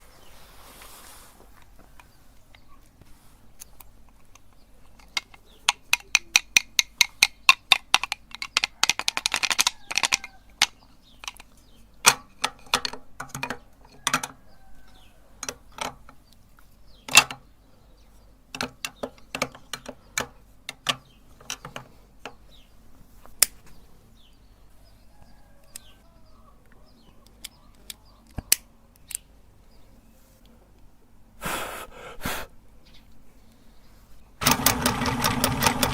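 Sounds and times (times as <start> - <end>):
meat grinder crushing wax: 34.4 - 35.9.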